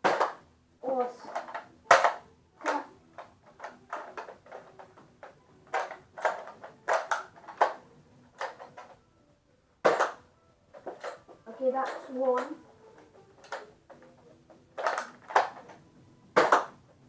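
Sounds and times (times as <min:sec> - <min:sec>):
plastic toy blasters clicking: 0:01.3 - 0:07.8, 0:13.4 - 0:14.1, 0:14.8 - 0:15.8, 0:16.4 - 0:16.8.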